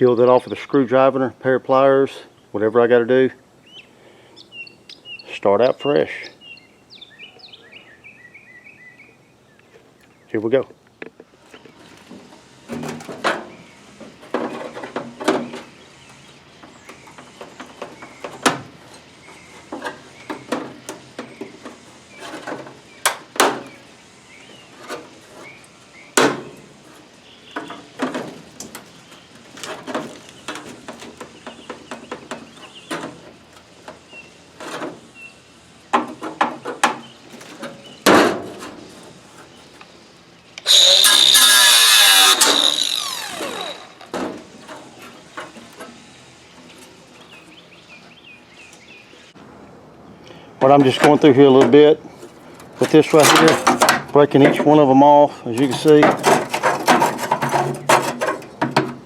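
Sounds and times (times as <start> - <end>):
power tool running: 40.6 - 44.2
sheet metal knocks and scrapes: 55.7 - 58.9.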